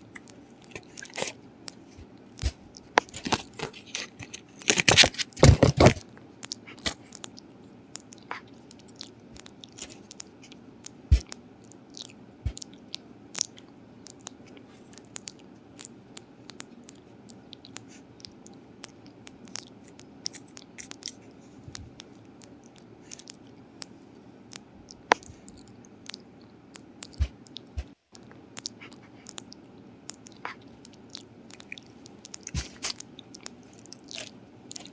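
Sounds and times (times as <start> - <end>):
dog chewing and crunching food: 25.1 - 34.9.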